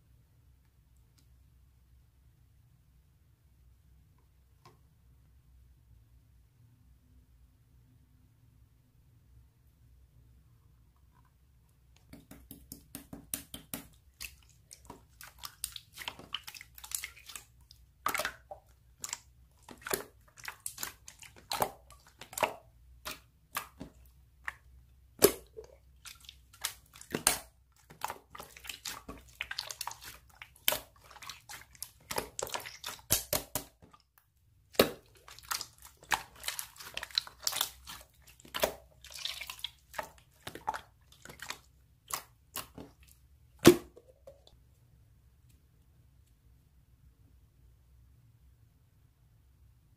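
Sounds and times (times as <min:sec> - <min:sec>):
slime squishing and popping: 0:12.2 - 0:33.9.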